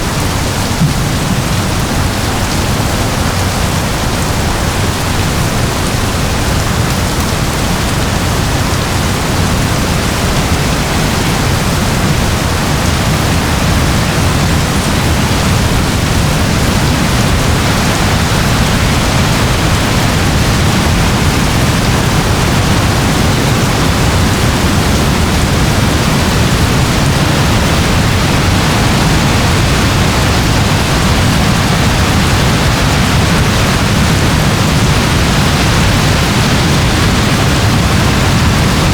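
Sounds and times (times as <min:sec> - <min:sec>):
low rumble: 0:00.0 - 0:05.2
steady rain hiss: 0:00.0 - 0:38.9.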